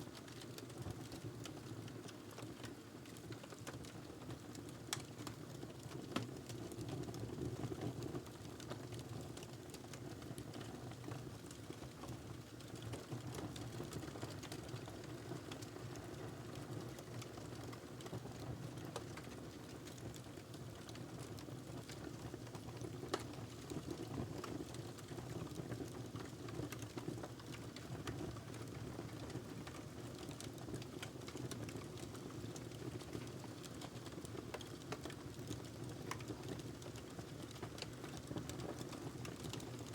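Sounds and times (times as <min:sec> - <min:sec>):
fire pops and snaps: 0:21.8 - 0:24.8, 0:29.7 - 0:39.9.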